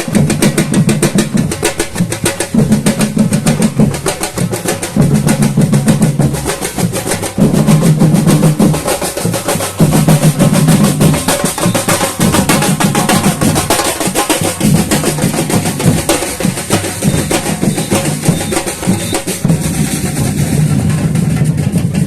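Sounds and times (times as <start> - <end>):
snare drums fast rhythm: 0.0 - 22.0
bass drums pulsing beat: 14.6 - 22.0.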